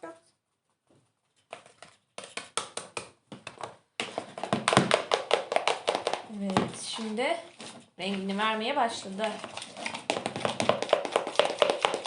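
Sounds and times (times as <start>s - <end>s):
slime stirred in bowl squelching: 4.0s - 12.0s.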